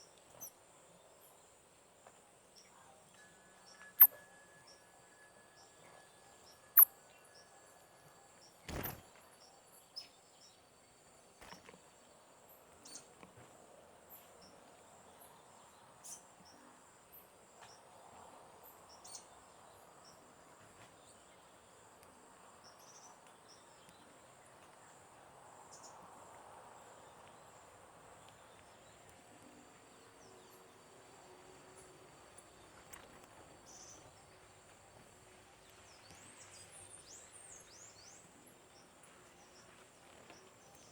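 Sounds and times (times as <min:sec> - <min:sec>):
bird chirps: 0:02.6 - 0:09.0.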